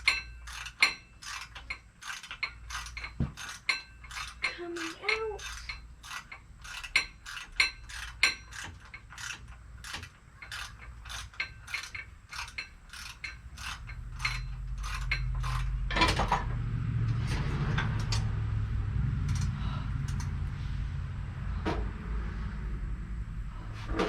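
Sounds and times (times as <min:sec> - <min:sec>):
ratchet wrench clicking: 0:00.0 - 0:16.4, 0:19.2 - 0:20.5
low hum: 0:13.8 - 0:24.0.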